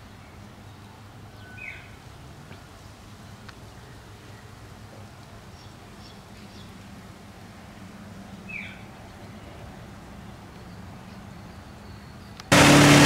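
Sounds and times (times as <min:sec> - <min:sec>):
faint bird chirps: 0:00.2 - 0:02.0.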